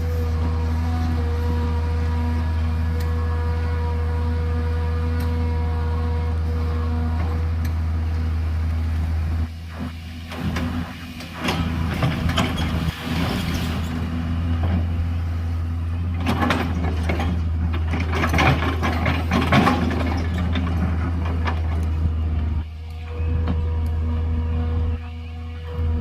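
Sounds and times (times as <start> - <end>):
excavator diesel engine running: 0.0 - 26.0
metal clanking and scraping: 10.4 - 14.9, 16.0 - 21.9.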